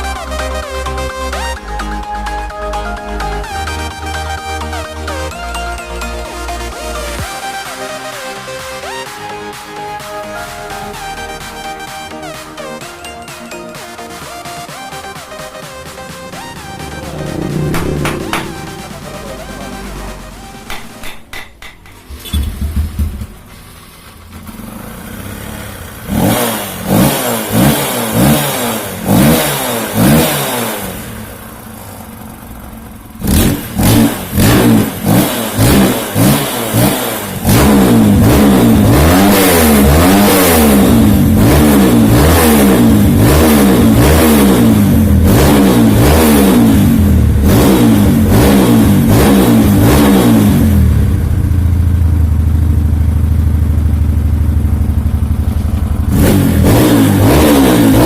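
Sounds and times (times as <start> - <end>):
motorcycle engine revving: 14.6 - 58.0.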